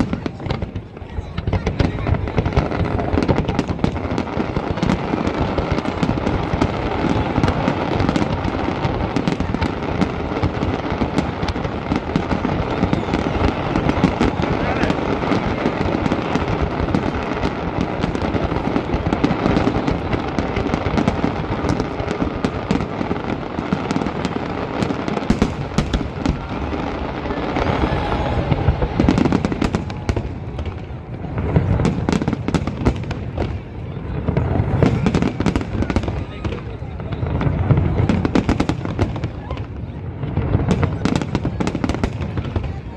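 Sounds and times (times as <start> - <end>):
deep firework booms: 0.0 - 42.9
fireworks bangs and crackles: 0.0 - 42.9.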